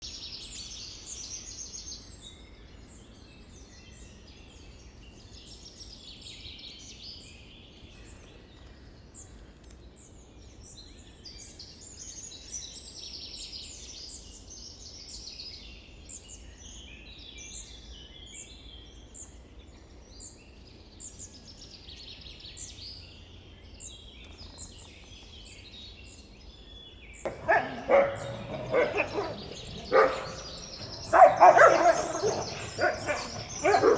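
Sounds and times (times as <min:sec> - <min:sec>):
birds chirping: 0:27.3 - 0:33.9
dog barking: 0:27.3 - 0:33.9.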